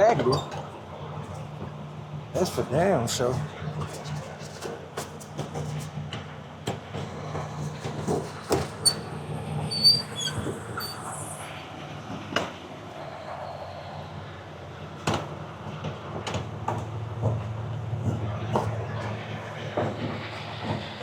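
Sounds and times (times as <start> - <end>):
metallic squeaks: 8.5 - 11.5.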